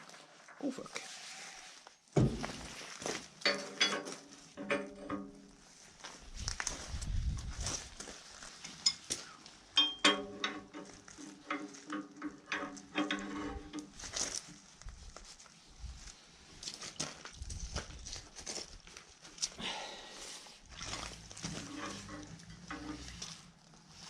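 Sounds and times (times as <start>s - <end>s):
metal hand tools clinking: 9.8s - 11.6s.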